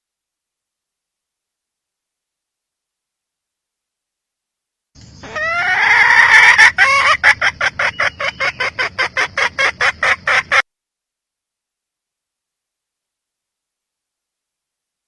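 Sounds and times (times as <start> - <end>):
hen calling: 5.0 - 10.6
hen clucking: 5.1 - 10.6.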